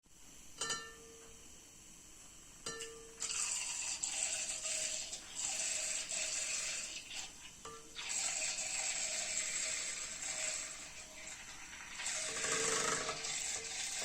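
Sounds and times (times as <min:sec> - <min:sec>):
milk frother motor buzzing: 0:03.2 - 0:14.0.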